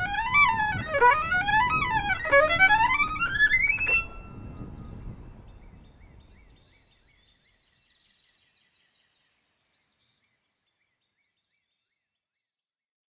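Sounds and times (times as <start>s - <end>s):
low outdoor background: 0.0s - 7.8s.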